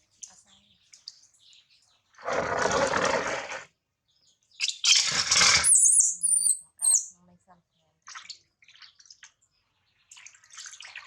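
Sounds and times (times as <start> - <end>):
baby monkey squealing: 4.6 - 7.1.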